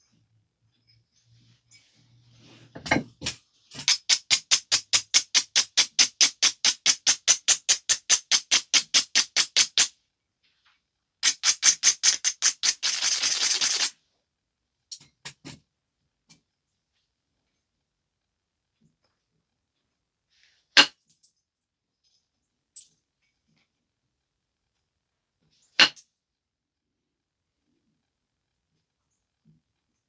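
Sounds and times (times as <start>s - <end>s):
stone scraping flint edge: 11.2s - 13.9s.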